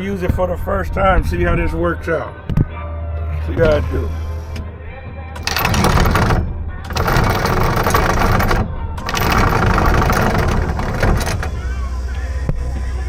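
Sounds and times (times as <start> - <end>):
anchor chain rattling: 5.4 - 11.9.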